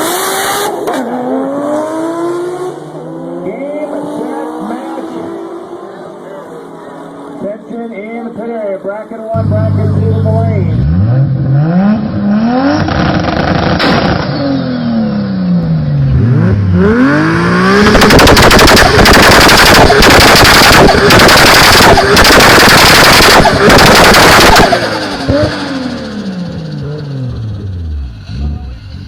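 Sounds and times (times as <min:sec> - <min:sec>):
car engine revving with crackle: 0:10.8 - 0:29.0.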